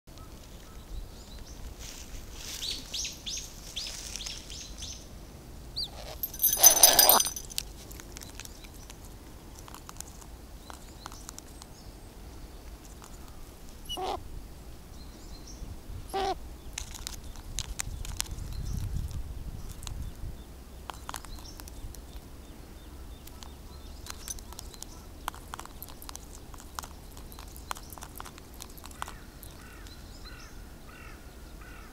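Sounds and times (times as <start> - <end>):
crows cawing: 29.1 - 31.9.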